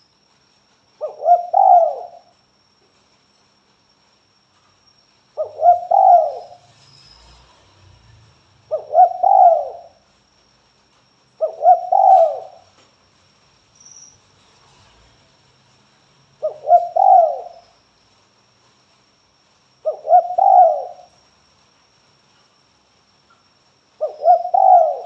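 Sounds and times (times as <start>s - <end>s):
dove cooing: 1.0s - 2.3s, 5.4s - 6.6s, 8.7s - 10.0s, 11.4s - 12.7s, 16.4s - 17.6s, 19.8s - 21.2s, 24.0s - 25.0s.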